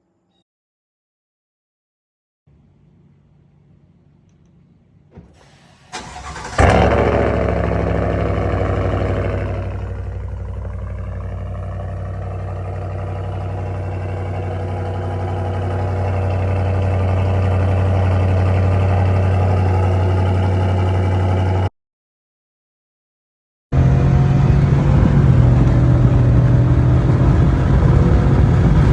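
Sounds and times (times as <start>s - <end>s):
deep engine idle: 5.4s - 21.7s
starter motor cranking: 5.8s - 7.2s
engine firing and revving: 5.9s - 21.7s, 23.8s - 28.9s.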